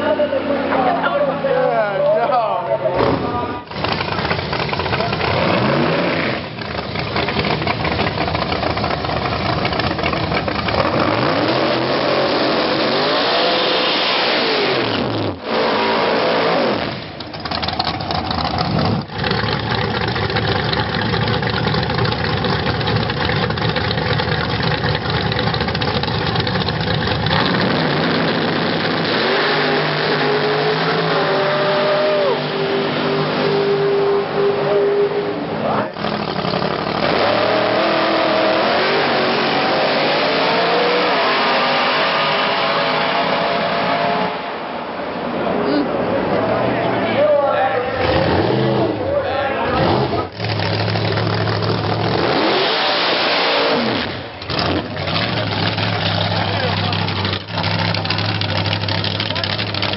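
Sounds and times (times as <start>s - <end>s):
drag racing engines revving: 0.0s - 59.9s.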